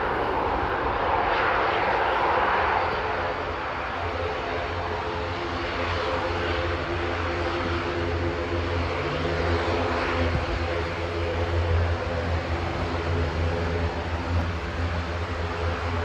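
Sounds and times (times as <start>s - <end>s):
airliner engines humming: 0.0s - 16.0s
wind rumbling on microphone: 7.1s - 16.0s.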